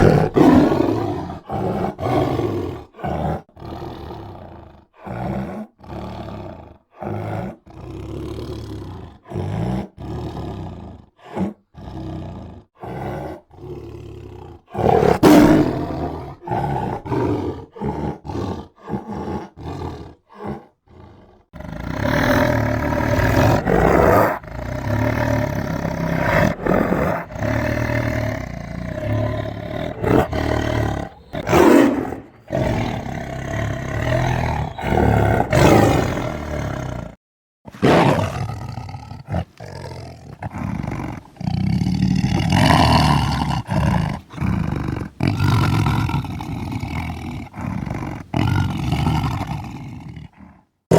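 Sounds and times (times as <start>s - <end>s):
tiger growling and roaring: 0.0s - 50.9s.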